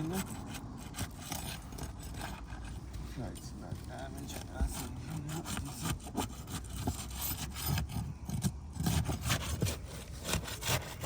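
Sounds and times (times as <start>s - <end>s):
shingle scraping and tearing: 0.0s - 11.0s.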